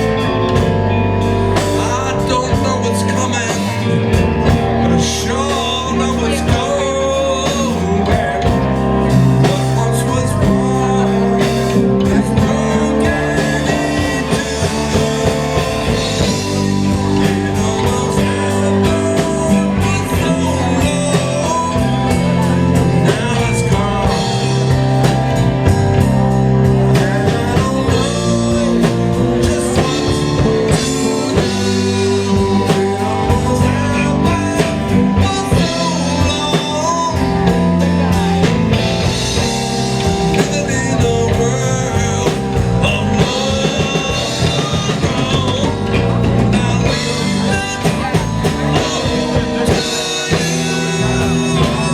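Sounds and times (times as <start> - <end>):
guitar: 0.0 - 51.9
live blues band playing: 0.0 - 51.9
person singing: 0.0 - 51.9.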